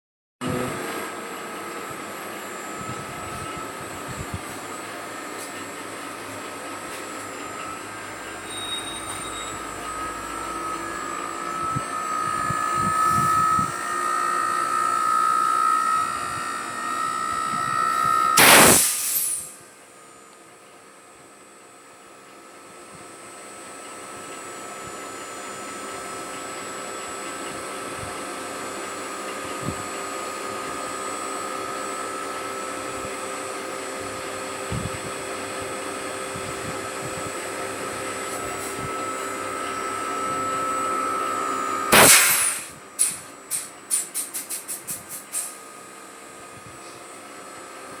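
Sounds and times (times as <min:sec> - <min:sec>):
blower motor whirring: 0:00.4 - 0:19.6, 0:22.9 - 0:43.4
short burst of rushing noise: 0:17.8 - 0:19.5.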